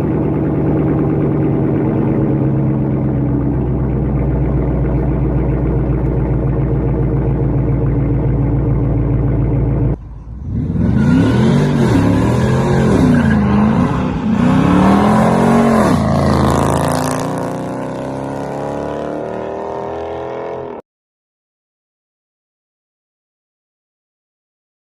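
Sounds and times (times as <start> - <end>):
car engine idling: 0.0 - 18.2
engine revving: 0.0 - 20.8.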